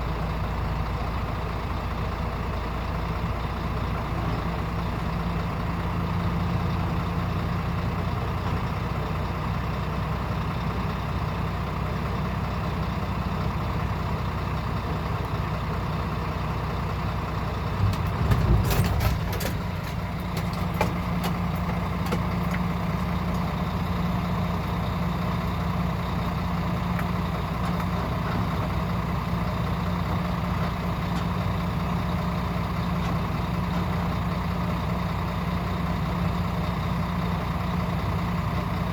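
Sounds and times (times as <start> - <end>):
diesel truck engine running: 0.0 - 38.9
knocks and rattles: 17.8 - 23.1.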